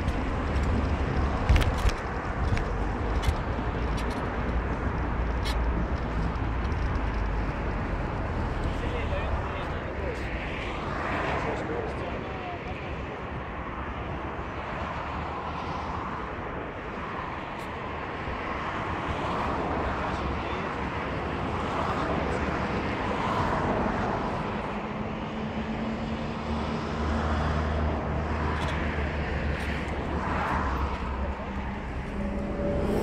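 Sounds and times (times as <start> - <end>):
road noise: 0.0 - 33.0
car engine hum: 24.4 - 33.0.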